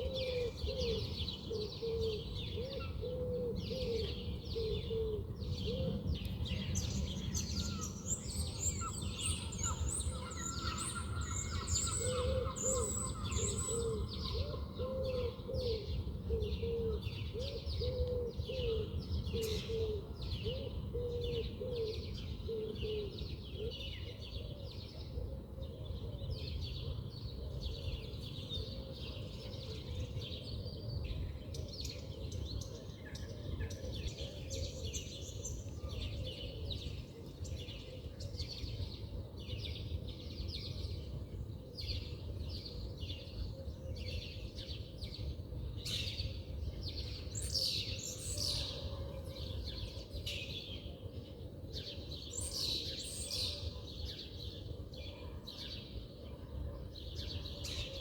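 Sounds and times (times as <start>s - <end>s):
bird cooing call: 0.0s - 6.0s, 7.6s - 26.2s
songbirds chirping: 0.0s - 58.0s.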